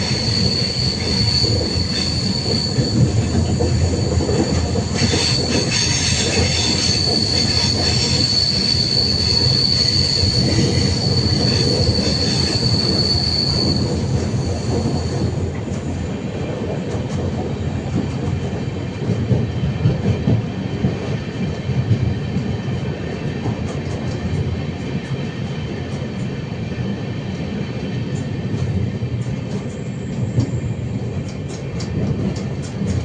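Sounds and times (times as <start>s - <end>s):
high wheel squeal: 0.0s - 15.3s
train wheels rumbling: 0.0s - 33.0s.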